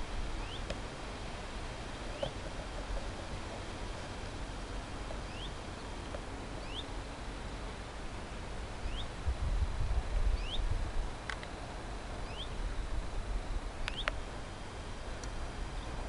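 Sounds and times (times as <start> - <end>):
outdoor background hiss: 0.0 - 16.0
bird repeating rising call: 0.4 - 0.7, 5.2 - 5.6, 6.6 - 6.9, 8.8 - 9.2, 10.4 - 10.7, 12.2 - 12.6
wind buffeting microphone: 8.8 - 11.2.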